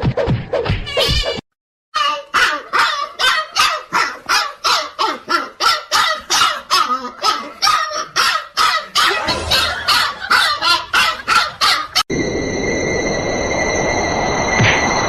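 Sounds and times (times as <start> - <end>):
dog barking rapidly: 2.2 - 12.0.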